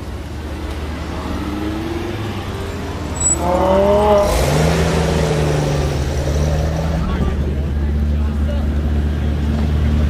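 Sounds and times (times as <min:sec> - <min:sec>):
car engine revving: 0:00.9 - 0:08.0.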